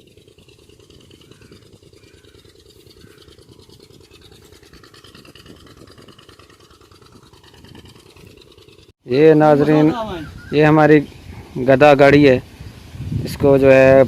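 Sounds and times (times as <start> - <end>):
fluttering low rumble: 0.0 - 8.9.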